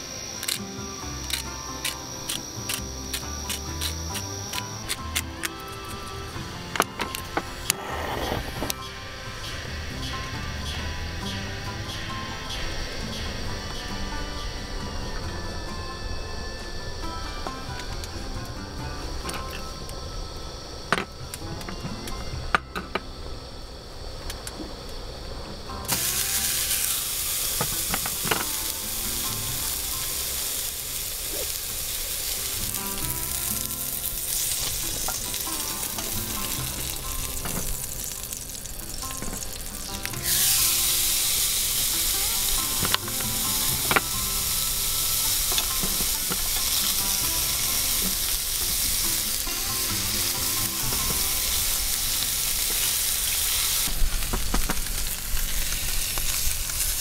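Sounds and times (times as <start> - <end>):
food sizzling in a pan: 25.9 - 57.0.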